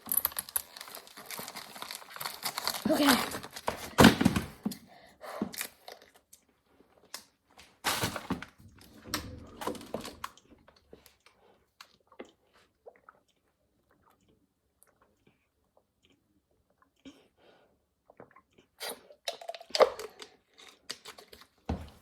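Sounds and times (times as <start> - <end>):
plastic bottle crinkling: 0.0 - 4.7, 7.8 - 8.6.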